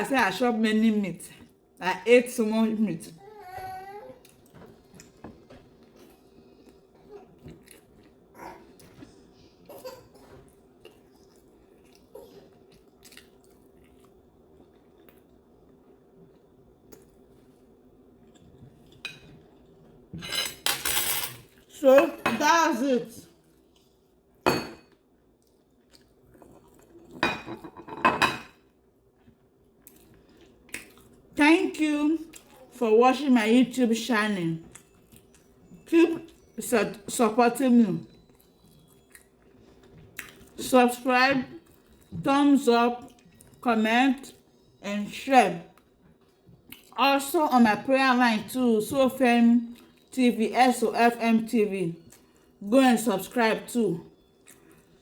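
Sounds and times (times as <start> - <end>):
low steady hum: 0.0 - 55.0
faint chewing: 4.2 - 19.8, 29.2 - 31.3, 38.1 - 40.6, 54.3 - 55.0
dishes and cutlery clinking: 18.8 - 22.6, 24.4 - 25.0, 27.0 - 28.7.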